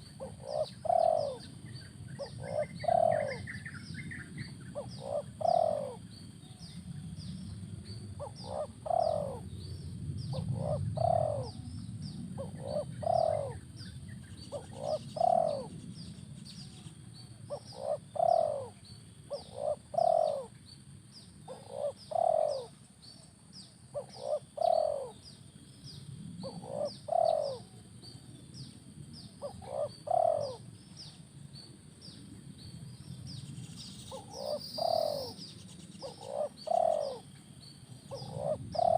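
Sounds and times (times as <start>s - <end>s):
dove cooing: 0.0s - 7.0s, 8.0s - 16.0s, 16.6s - 20.6s, 21.4s - 23.2s, 23.9s - 25.3s, 26.4s - 27.8s, 29.2s - 31.2s, 34.0s - 38.9s.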